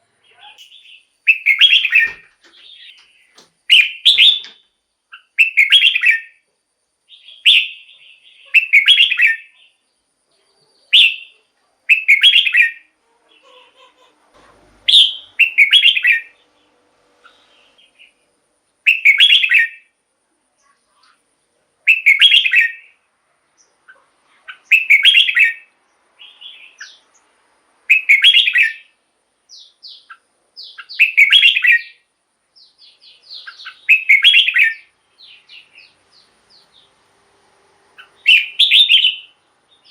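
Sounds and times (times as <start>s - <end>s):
bulbul whistled song: 0.3s - 3.0s, 3.6s - 6.4s, 7.1s - 9.7s, 10.9s - 12.9s, 14.8s - 16.4s, 18.8s - 19.9s, 21.9s - 23.0s, 24.5s - 27.1s, 27.9s - 32.0s, 32.6s - 36.9s, 38.0s - 39.9s.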